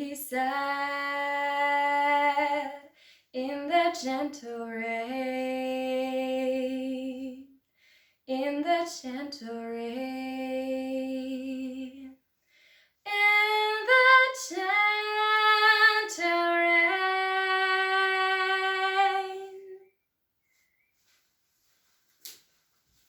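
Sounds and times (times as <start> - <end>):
woman taking quick breaths: 3.0 - 3.3, 7.7 - 8.2, 12.4 - 13.0.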